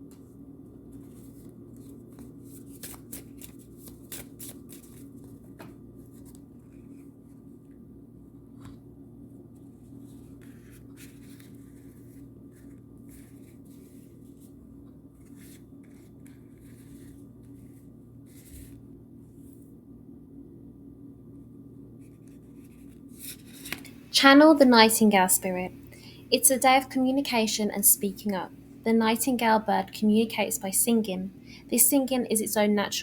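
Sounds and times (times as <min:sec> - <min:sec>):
cards shuffling and slapping: 0:00.9 - 0:07.0, 0:10.1 - 0:14.6, 0:22.3 - 0:24.0.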